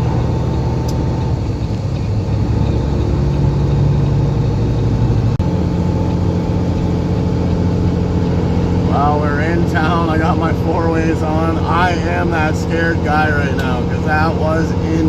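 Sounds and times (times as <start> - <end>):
diesel truck engine drone: 0.0 - 15.0.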